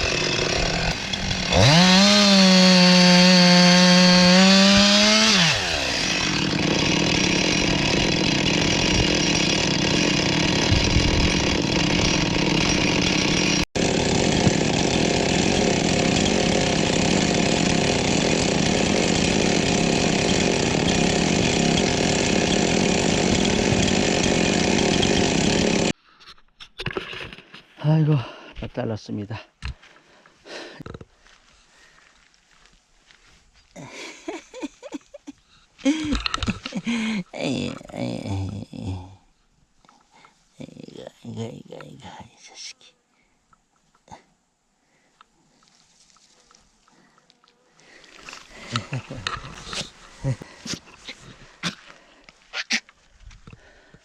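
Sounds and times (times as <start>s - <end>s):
chainsaw cutting firewood: 0.0s - 26.0s, 33.8s - 39.2s, 46.1s - 52.9s.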